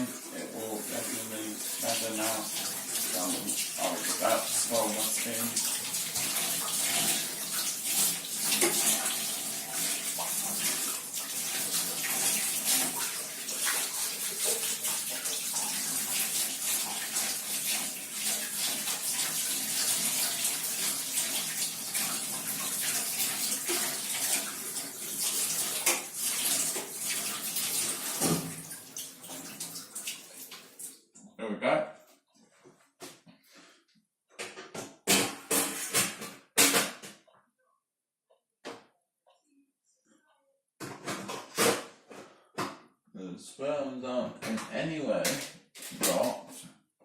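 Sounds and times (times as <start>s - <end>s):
tap water running: 0.0s - 31.0s, 35.1s - 36.8s, 45.3s - 46.5s.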